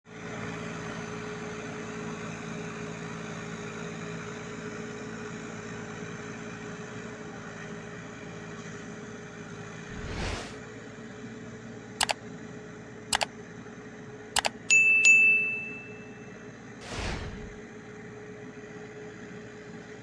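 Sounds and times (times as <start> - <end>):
tractor engine running: 10.9 - 18.6.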